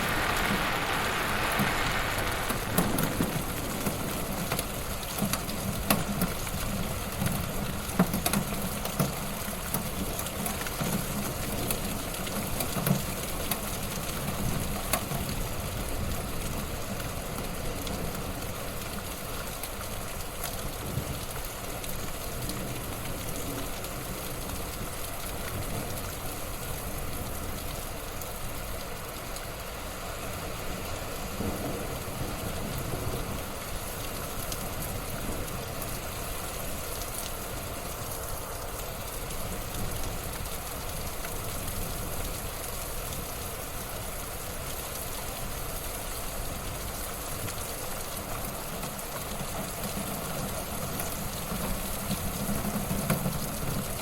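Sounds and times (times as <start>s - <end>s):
fire pops: 0.0s - 4.7s
wood fire crackling: 0.0s - 5.6s.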